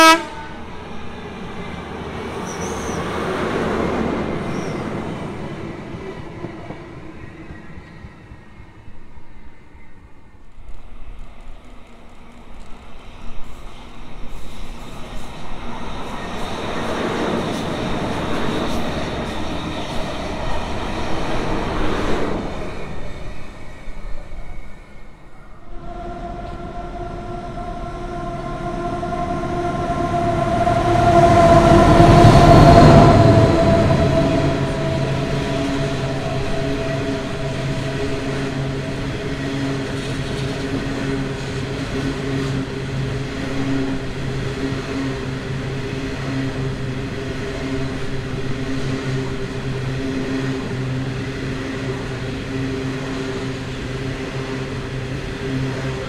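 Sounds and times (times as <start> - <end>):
diesel locomotive drone: 0.0 - 56.0
wagons rumbling past: 25.7 - 41.6.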